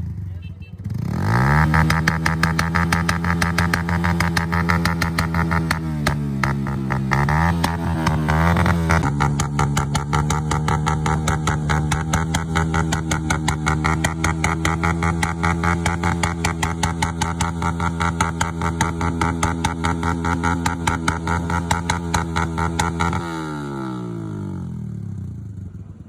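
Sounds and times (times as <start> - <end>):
motorcycle engine idling: 1.9 - 23.2, 24.6 - 26.0.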